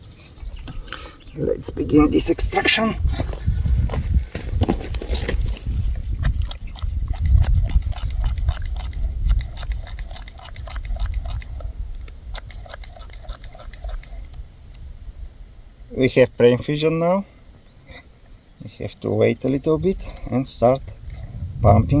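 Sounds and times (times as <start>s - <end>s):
low rumble: 21.0s - 22.0s.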